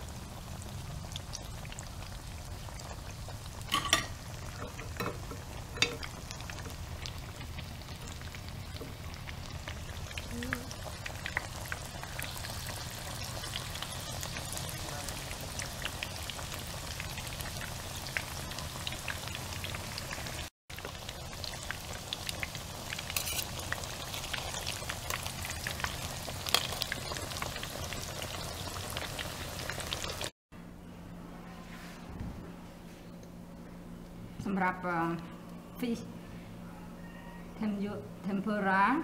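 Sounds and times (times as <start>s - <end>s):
fish deep-frying in hot oil: 0.0s - 30.3s.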